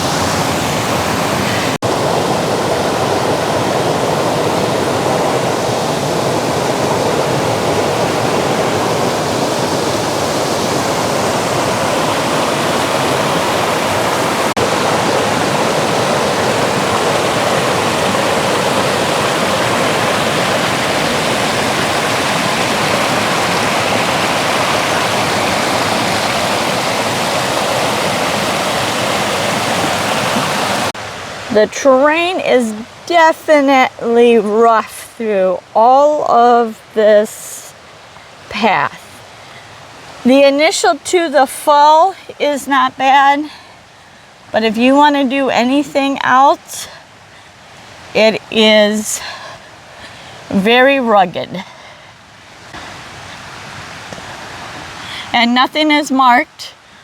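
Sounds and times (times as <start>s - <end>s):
water rushing over waterfall: 0.0s - 47.1s, 52.4s - 57.0s.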